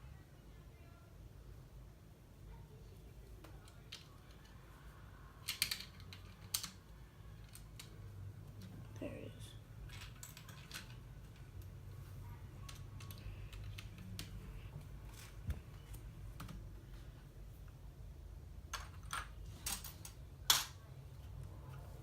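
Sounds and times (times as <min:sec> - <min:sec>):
plastic pieces clicking: 0:05.4 - 0:08.0, 0:09.8 - 0:11.7.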